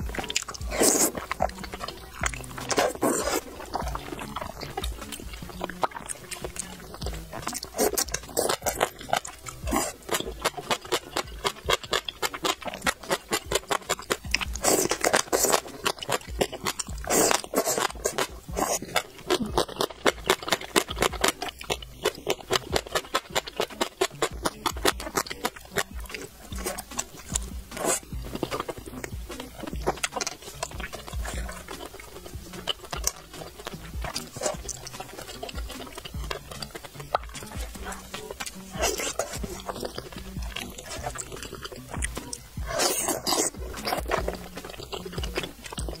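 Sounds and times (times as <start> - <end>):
crisp crunching chewing: 0.0 - 46.0
slurping: 0.0 - 46.0.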